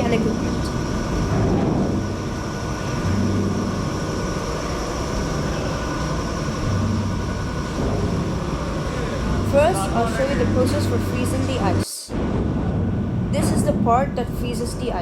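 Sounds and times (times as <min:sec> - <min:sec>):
thin high whine: 0:00.0 - 0:11.8
machinery humming: 0:00.0 - 0:15.0.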